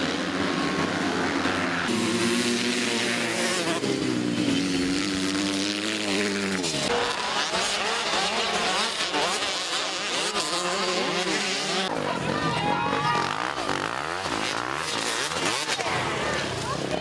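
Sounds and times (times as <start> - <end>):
motocross bike engines revving: 0.0 - 17.0.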